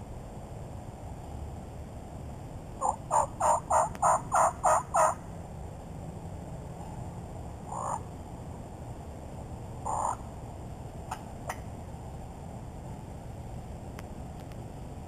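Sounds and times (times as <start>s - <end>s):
turkey gobbling: 2.8s - 5.2s.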